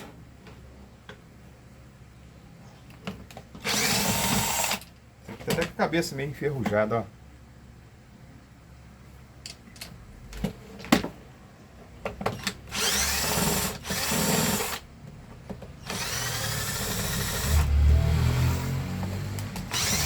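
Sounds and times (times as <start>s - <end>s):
electric screwdriver motor: 3.7s - 4.8s, 12.7s - 14.8s, 15.8s - 18.7s, 19.5s - 20.0s.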